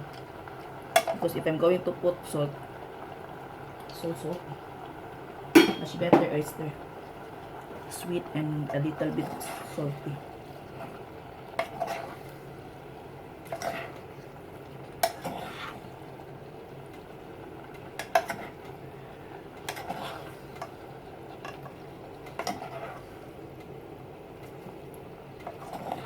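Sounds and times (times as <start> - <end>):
utensil scraping and clinking on pan: 22.3 - 23.1.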